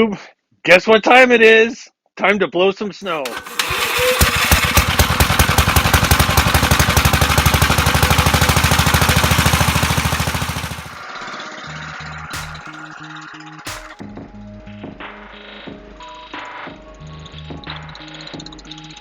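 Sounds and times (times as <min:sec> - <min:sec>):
tractor engine running: 0:03.1 - 0:11.2, 0:12.4 - 0:12.7, 0:13.7 - 0:14.0.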